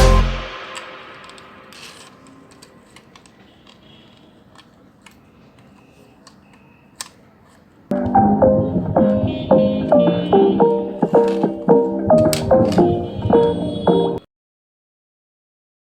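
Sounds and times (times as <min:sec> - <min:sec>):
music: 0:00.0 - 0:01.5, 0:07.9 - 0:14.2.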